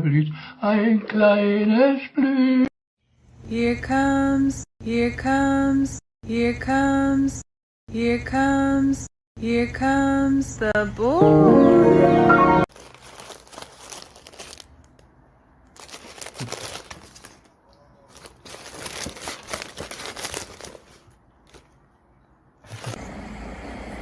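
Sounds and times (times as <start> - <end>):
crinkling and rustling: 12.7 - 21.9.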